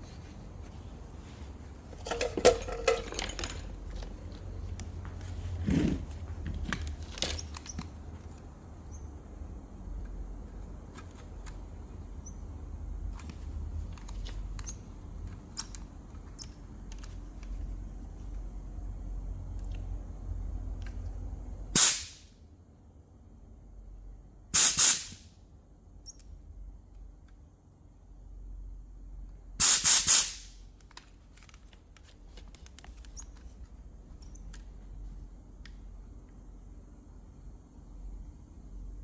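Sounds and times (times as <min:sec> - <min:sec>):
light clicks and handling noises: 0:00.0 - 0:21.6, 0:30.6 - 0:37.0
pressurised spray hissing: 0:24.6 - 0:25.2, 0:29.6 - 0:30.5.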